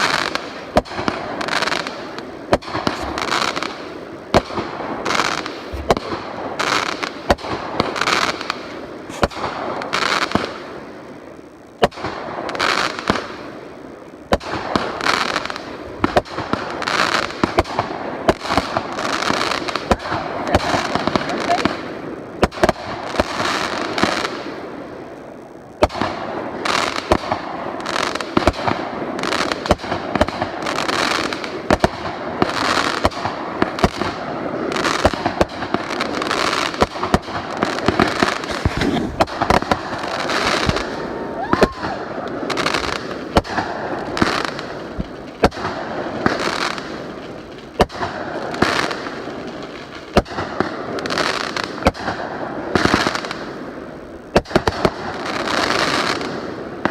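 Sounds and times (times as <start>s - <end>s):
fireworks bangs: 0.0s - 56.9s
fireworks crackling: 0.0s - 56.9s
rising firework whistle: 38.0s - 43.0s.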